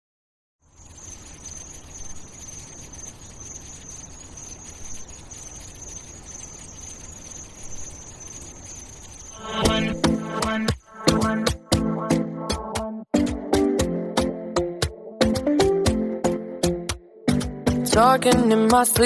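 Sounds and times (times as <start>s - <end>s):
insect-like chirring: 0.6s - 11.6s
music with strong beat: 9.4s - 19.0s.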